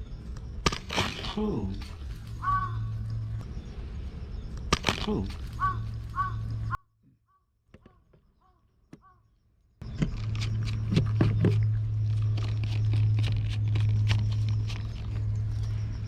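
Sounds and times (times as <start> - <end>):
steady low hum: 0.0 - 6.8, 9.8 - 16.0
cat crunching dry food: 10.1 - 15.5.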